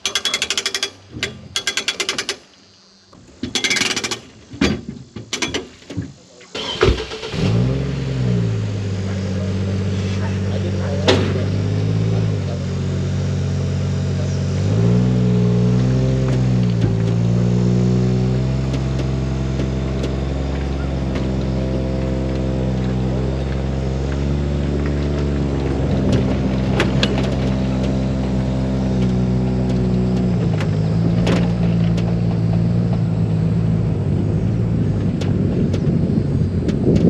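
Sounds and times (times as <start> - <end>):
outboard motor running: 8.3 - 37.0.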